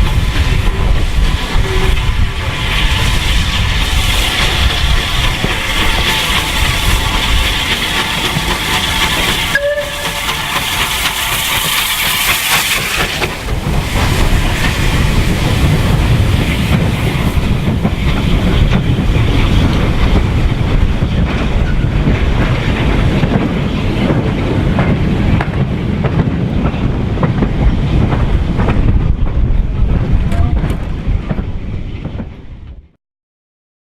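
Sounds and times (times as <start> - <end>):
loud steam hiss: 0.0 - 25.4
heavy rumble of train running: 0.0 - 33.0
wheels clacking over rail joints: 3.2 - 32.4.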